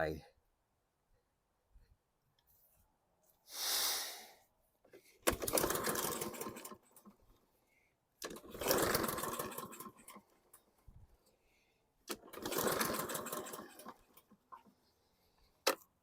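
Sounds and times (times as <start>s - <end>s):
short hiss: 3.5s - 4.4s
mower engine starting and stalling: 5.2s - 7.2s, 8.2s - 10.7s, 12.1s - 14.7s.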